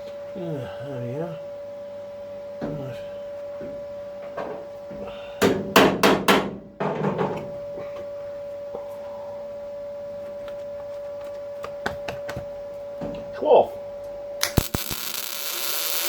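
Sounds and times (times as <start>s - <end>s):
steady hum: 0.0s - 16.0s
hammer striking sheet steel: 5.4s - 7.3s.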